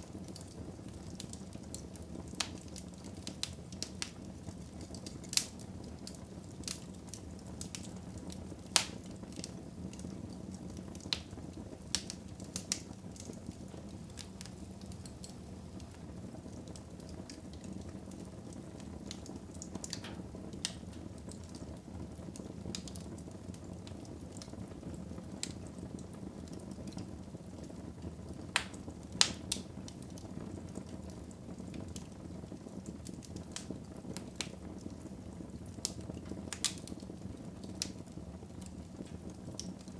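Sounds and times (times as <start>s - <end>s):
fire crackling and popping: 0.0s - 39.9s
fire rumbling: 0.0s - 39.9s.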